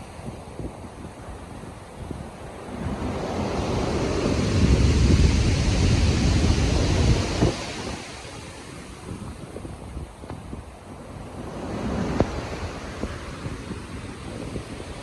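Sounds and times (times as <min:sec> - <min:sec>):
wind noise on microphone: 0:00.0 - 0:15.0
storm wave breaking: 0:02.4 - 0:09.4.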